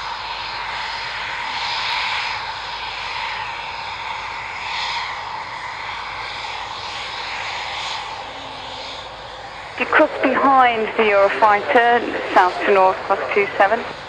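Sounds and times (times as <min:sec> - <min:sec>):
aircraft engine drone: 0:00.0 - 0:14.0.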